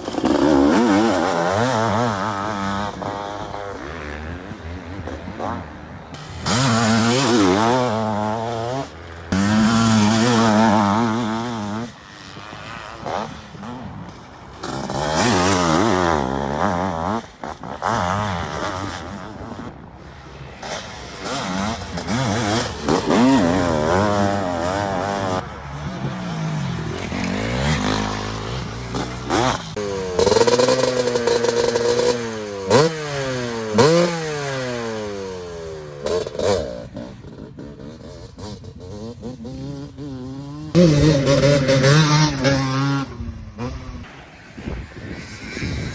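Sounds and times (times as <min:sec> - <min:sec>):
motocross motorcycles revving: 0:00.0 - 0:45.9.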